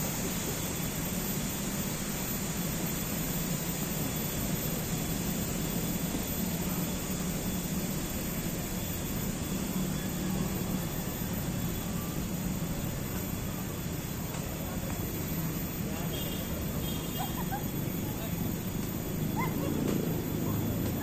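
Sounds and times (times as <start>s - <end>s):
distant engines rumbling: 4.4s - 21.0s.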